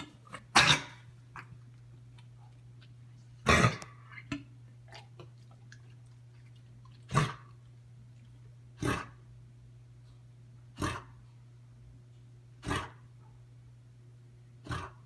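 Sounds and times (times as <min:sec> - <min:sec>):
dog coughing: 0:00.0 - 0:01.5, 0:03.4 - 0:04.4, 0:07.1 - 0:07.5, 0:12.6 - 0:13.0.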